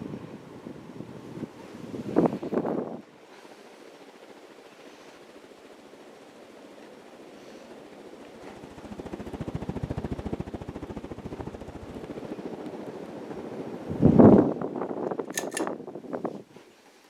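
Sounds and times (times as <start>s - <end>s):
sharp clicks: 15.3s - 15.7s.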